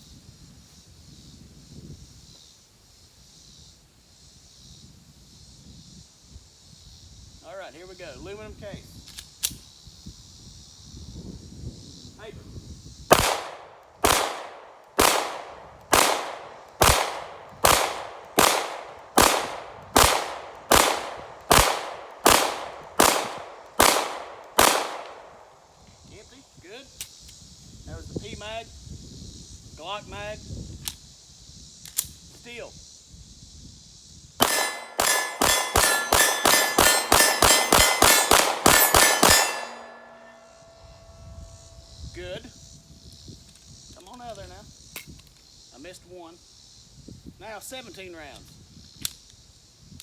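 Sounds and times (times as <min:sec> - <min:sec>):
pistol shots echoing: 0:13.1 - 0:25.4, 0:34.4 - 0:40.8
steel target ringing: 0:34.4 - 0:41.2.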